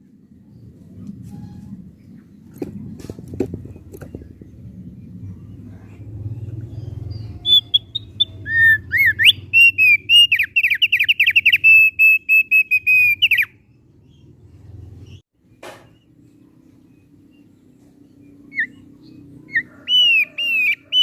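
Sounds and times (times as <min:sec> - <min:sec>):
bird singing whistled notes: 0:06.7 - 0:14.3, 0:15.9 - 0:21.0.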